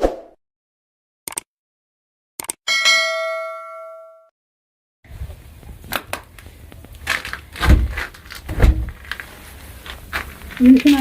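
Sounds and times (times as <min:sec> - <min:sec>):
bell-like chime: 0:02.7 - 0:04.3.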